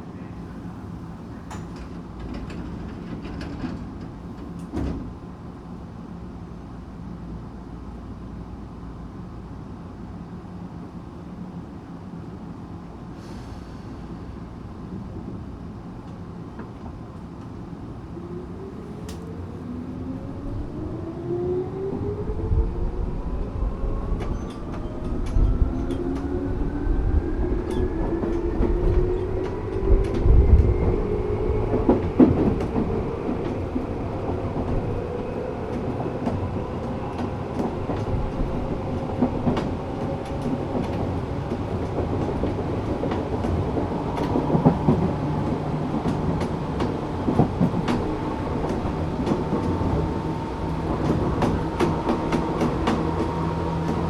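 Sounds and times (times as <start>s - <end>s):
train wheel noise: 0.5s - 5.8s, 12.8s - 54.0s
rail-joint clicks: 1.4s - 5.1s, 24.1s - 26.7s, 27.5s - 31.0s, 31.7s - 54.0s.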